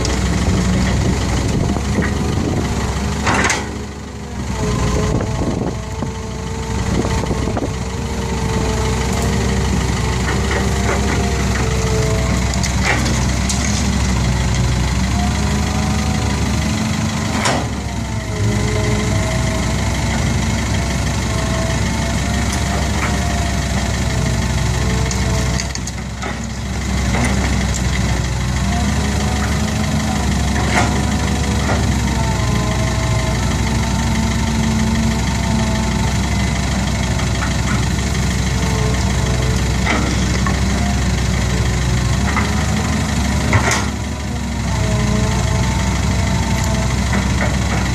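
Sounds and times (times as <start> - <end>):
dump truck diesel engine: 0.0 - 47.9.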